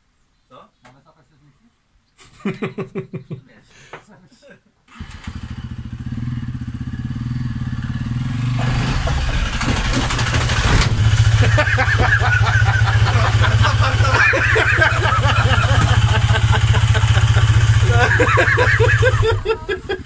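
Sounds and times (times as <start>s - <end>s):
motorcycle engine revving: 4.9s - 20.0s.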